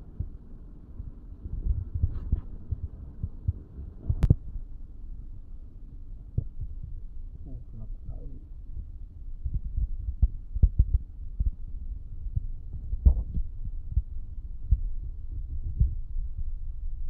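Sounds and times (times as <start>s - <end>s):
low rumble: 0.0s - 17.0s
dull low thumps and knocks: 1.0s - 4.7s, 6.2s - 7.5s, 8.6s - 17.0s.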